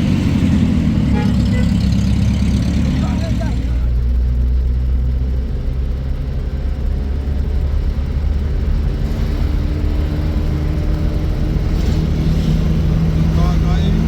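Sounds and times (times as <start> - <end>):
vehicle engine droning: 0.0 - 14.0.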